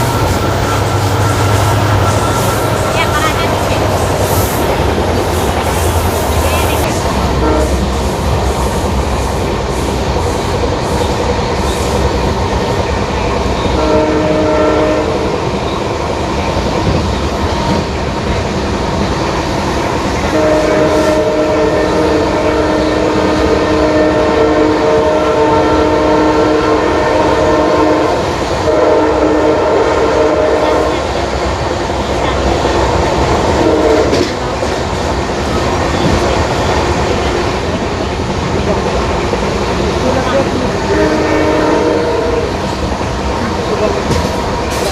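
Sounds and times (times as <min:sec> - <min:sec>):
train wheels on rails: 0:00.0 - 0:44.9
locomotive horn blasts: 0:07.3 - 0:07.9, 0:13.7 - 0:15.3, 0:20.3 - 0:31.1, 0:33.6 - 0:34.4, 0:40.8 - 0:42.6.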